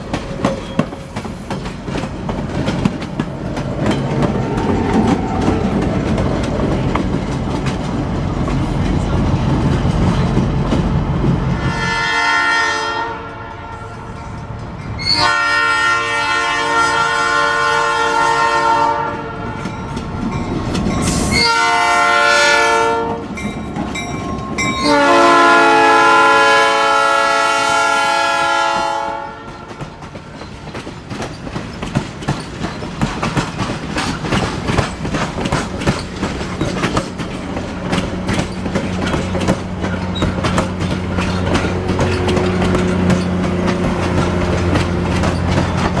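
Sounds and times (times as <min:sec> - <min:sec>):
train wheels clicking on rails: 0:00.0 - 0:11.8, 0:19.1 - 0:46.0
locomotive air horn blasts: 0:11.5 - 0:14.1, 0:15.0 - 0:19.6, 0:21.1 - 0:23.3, 0:24.8 - 0:29.9.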